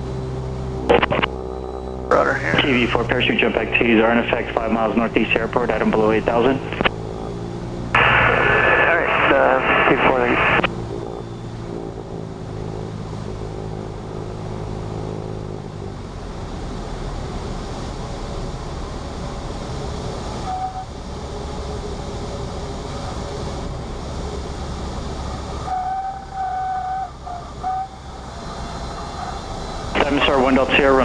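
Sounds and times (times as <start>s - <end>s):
aircraft engine droning: 0.0s - 31.0s.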